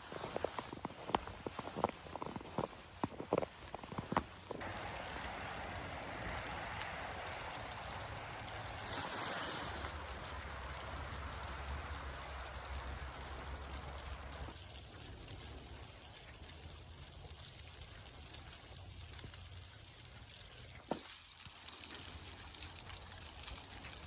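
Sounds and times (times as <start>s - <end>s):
footsteps crunching in snow: 0.0s - 4.8s
rushing outdoor noise: 0.0s - 15.7s.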